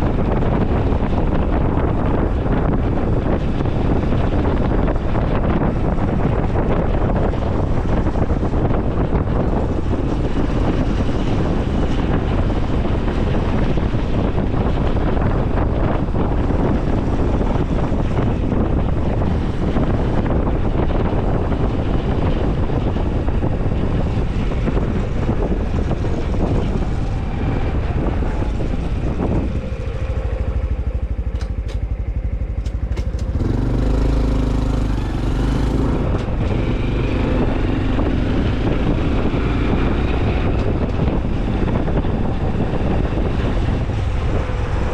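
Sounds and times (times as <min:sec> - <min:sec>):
motorcycle engine running: 0:00.0 - 0:44.9
wind rush over microphone: 0:00.0 - 0:44.9
ticks: 0:31.3 - 0:33.4.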